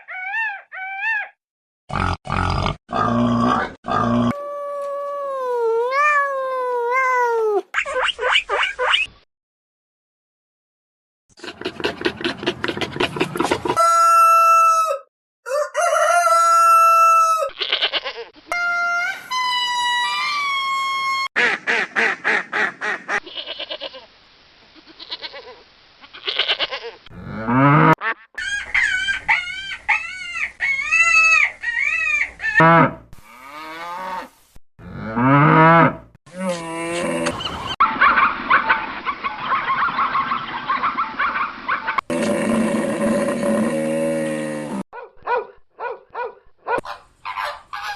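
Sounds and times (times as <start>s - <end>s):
chickens clucking: 11.4s - 14.2s, 46.8s - 47.9s
rooster crowing: 13.8s - 17.6s.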